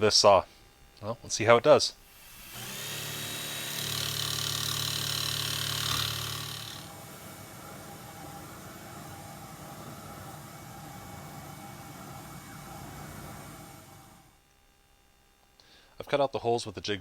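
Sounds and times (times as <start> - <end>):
jigsaw cutting plywood: 2.2 - 6.9.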